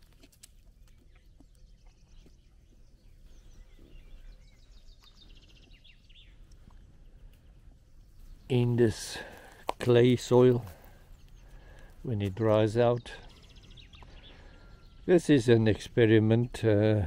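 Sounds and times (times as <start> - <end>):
faint bird song trills: 0.1 - 17.0.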